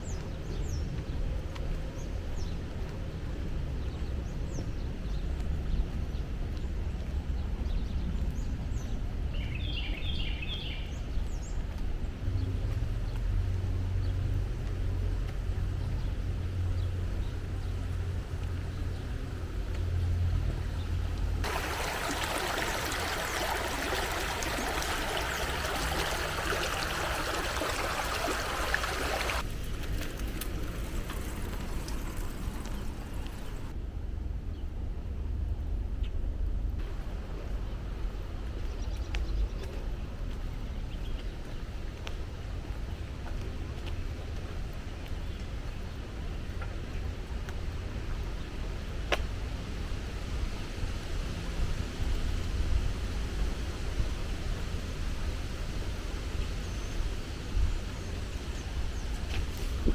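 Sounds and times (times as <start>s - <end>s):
brook rushing: 21.4s - 33.7s.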